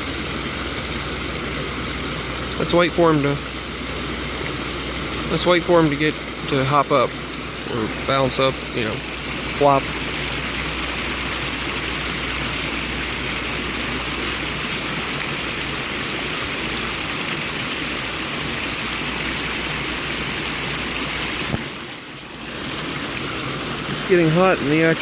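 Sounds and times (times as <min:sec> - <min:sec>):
creek water running over rocks: 0:00.0 - 0:25.0.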